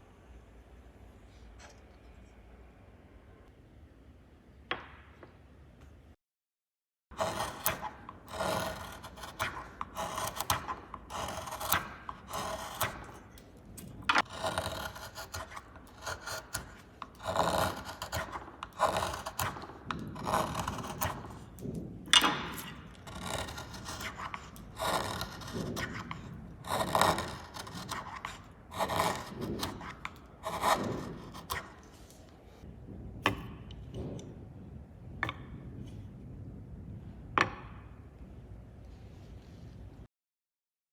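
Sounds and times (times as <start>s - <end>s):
chisel scraping wood: 7.1s - 32.7s.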